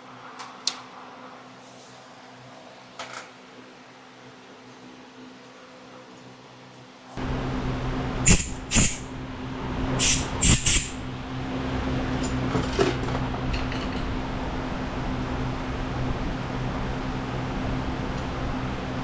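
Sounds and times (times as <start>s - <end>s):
machine running hum: 6.2s - 19.0s.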